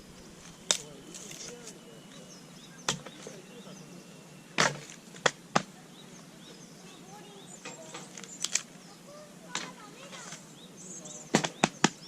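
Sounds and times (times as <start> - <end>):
firewood splitting knocks: 4.6 - 5.7, 11.3 - 12.0.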